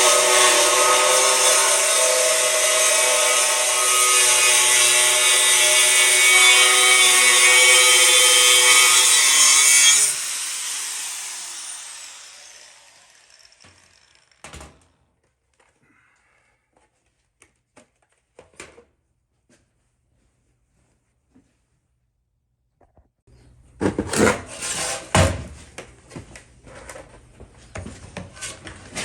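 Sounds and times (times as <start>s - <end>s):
angle grinder cutting steel: 0.0s - 14.4s.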